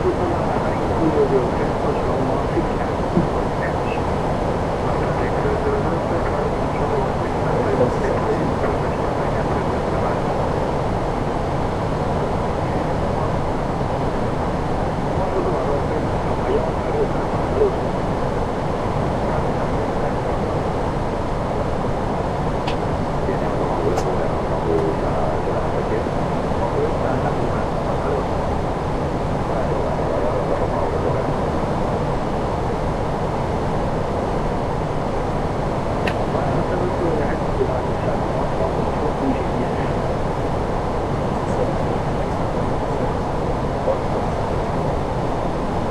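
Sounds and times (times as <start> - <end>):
steady rushing noise in cockpit: 0.0 - 45.9.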